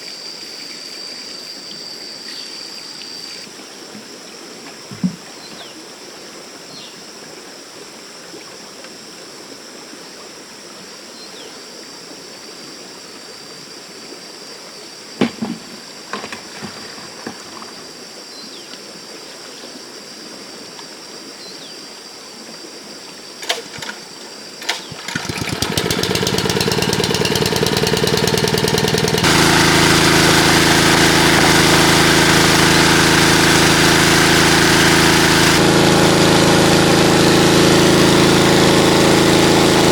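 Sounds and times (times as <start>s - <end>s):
stream water running: 14.9s - 39.9s
small engine running: 23.4s - 39.9s.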